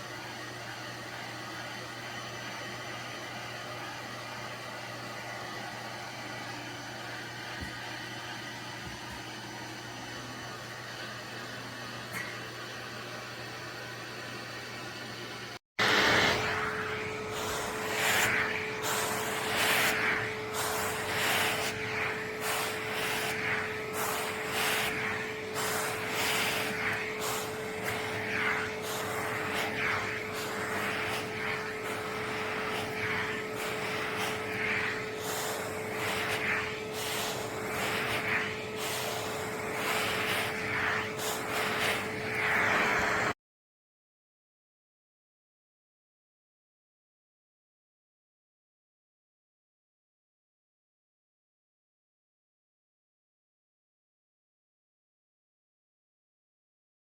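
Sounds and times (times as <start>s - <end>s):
grooming vacuum motor hum: 0.0s - 43.4s
vacuum suction rushing: 15.8s - 43.4s.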